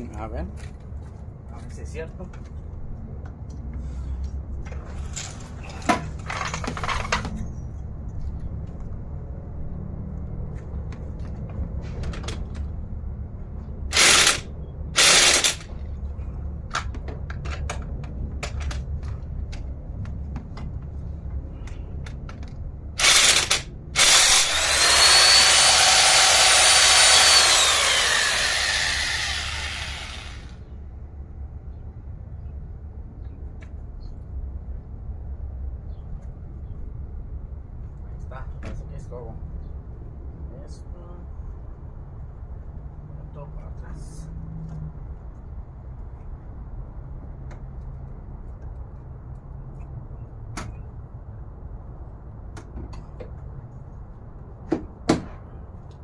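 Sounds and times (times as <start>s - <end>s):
power tool whining: 13.9s - 14.4s, 15.0s - 15.6s, 23.0s - 30.6s.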